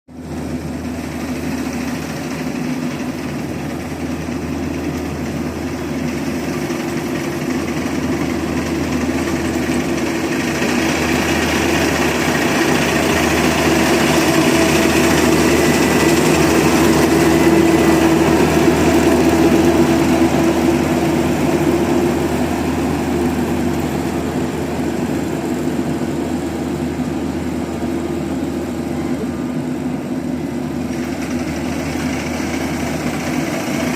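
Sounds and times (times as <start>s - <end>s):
combine harvester engine running: 0.1s - 33.9s.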